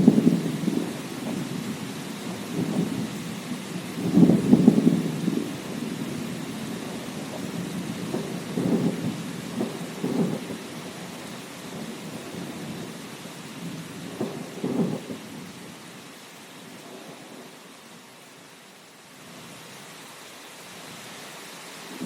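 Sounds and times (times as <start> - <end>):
thunder rumbling: 0.0 - 15.7
steady rain: 0.0 - 22.0.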